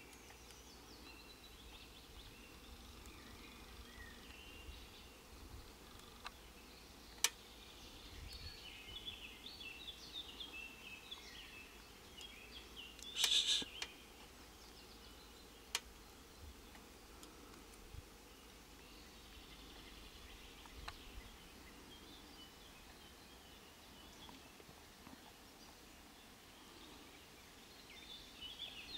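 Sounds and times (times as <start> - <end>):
small birds chirping: 0.0 - 28.9
sharp clicks: 13.0 - 13.9
brief burst of noise: 13.2 - 13.7.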